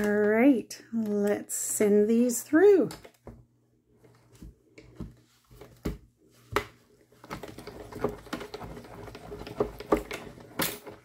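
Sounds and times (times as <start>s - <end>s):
hand-cranked machine rattling: 7.2s - 11.0s.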